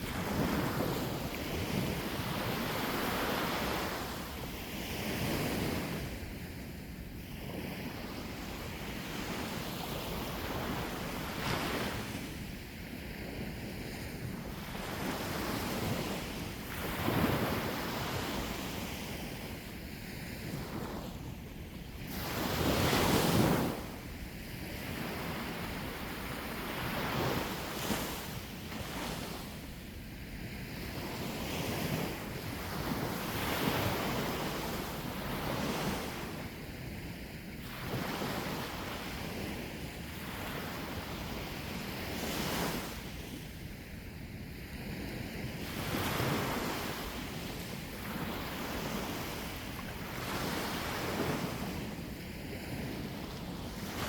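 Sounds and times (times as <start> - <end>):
wind buffeting microphone: 0.0 - 19.6.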